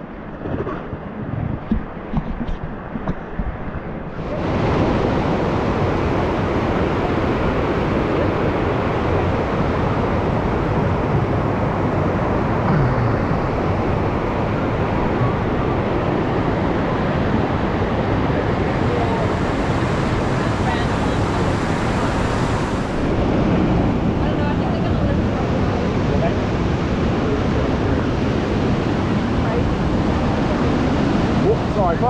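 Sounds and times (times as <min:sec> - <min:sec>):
whitewater rushing: 0:04.0 - 0:32.0.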